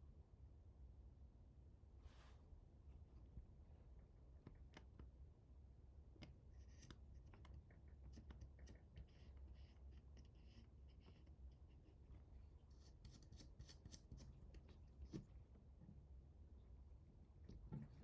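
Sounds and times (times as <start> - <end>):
low steady hum: 0.0 - 18.0
small clicks and scratchy rustles: 6.2 - 15.6.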